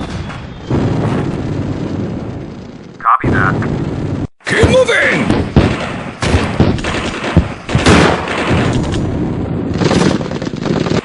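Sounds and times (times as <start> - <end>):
loud blasts: 0.0 - 11.0
rifle and machine-gun fire: 0.0 - 11.0.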